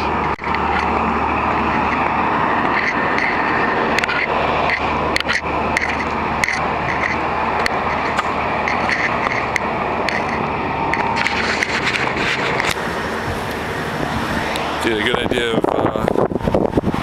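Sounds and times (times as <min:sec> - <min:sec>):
clicks and scrapes: 0:00.0 - 0:12.8
strong wind on microphone: 0:00.0 - 0:17.0.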